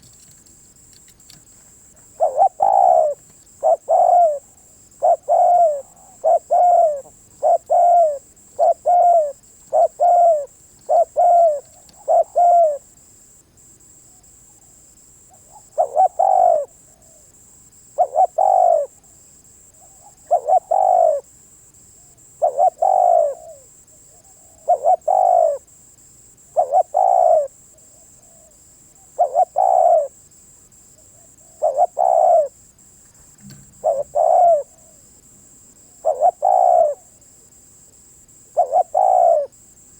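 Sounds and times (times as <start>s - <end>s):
dove cooing: 1.9s - 12.9s, 14.2s - 17.3s, 17.9s - 19.1s, 19.7s - 21.3s, 22.4s - 25.8s, 26.4s - 30.2s, 31.0s - 35.1s, 35.8s - 37.2s, 38.5s - 39.6s.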